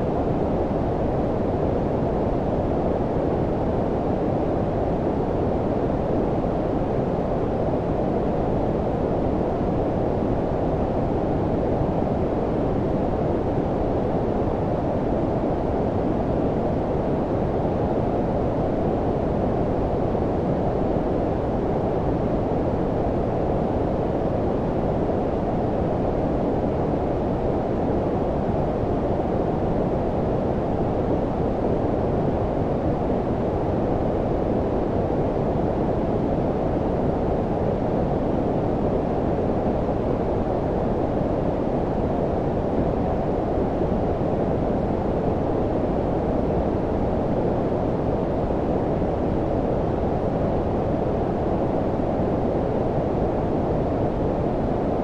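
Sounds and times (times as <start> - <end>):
brown noise rumble: 0.0 - 55.0.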